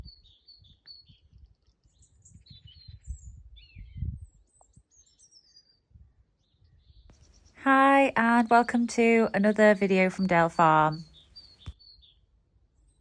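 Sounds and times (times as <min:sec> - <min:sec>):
small birds chirping and trilling: 0:00.0 - 0:07.6, 0:09.7 - 0:12.2.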